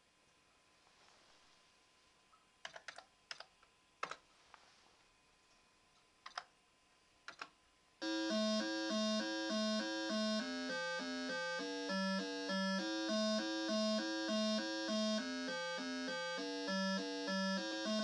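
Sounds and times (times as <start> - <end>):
computer keyboard keys clicking: 2.6 - 4.2, 6.2 - 6.5, 7.3 - 7.5
square-wave computer music: 8.0 - 18.0.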